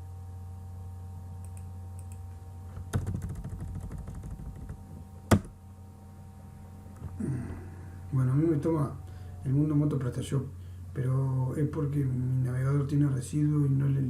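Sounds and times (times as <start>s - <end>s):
steady low hum: 0.0s - 14.0s
keyboard typing: 2.9s - 4.8s.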